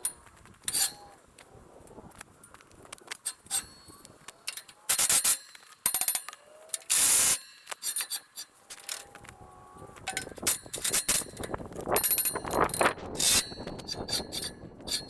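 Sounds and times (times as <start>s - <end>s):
wrenches clanking on steel: 0.0s - 1.1s, 3.2s - 9.2s, 10.1s - 15.0s
harsh metallic rasp: 12.0s - 15.0s.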